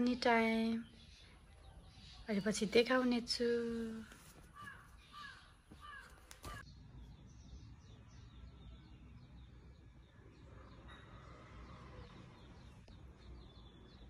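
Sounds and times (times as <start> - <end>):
faint bird calls: 3.8 - 6.8.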